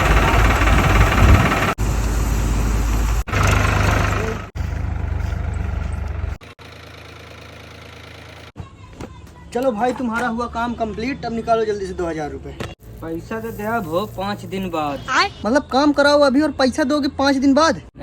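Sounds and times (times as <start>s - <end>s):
farm machine engine rumbling: 0.0s - 8.5s.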